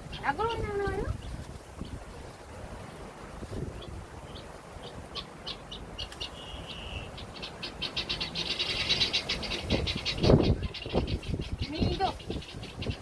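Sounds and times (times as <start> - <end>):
bird chirping and trilling: 0.0 - 2.0, 3.7 - 13.0
wind rumble on microphone: 0.0 - 5.2, 9.2 - 13.0.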